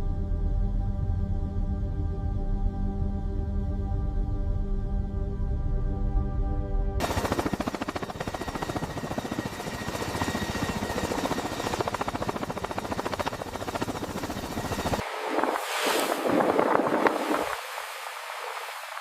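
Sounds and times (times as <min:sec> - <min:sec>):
music: 0:00.0 - 0:07.0.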